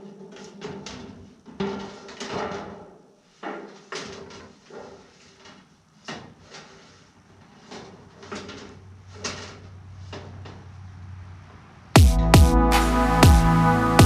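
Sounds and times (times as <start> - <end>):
light knocks and clatters: 0.2 - 10.8.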